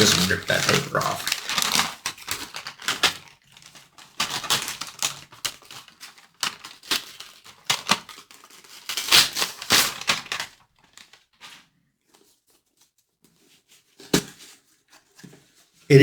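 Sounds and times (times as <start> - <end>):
wrapping paper tearing: 0.0 - 11.3.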